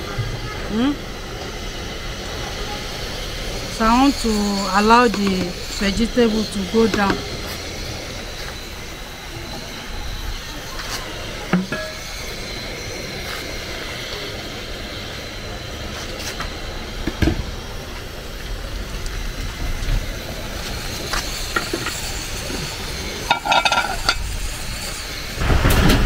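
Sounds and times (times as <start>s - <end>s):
rain hissing: 0.0s - 26.0s.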